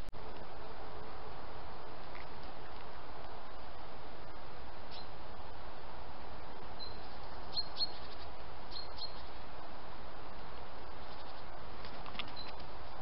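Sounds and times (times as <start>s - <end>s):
high bird chirps: 6.8s - 9.4s.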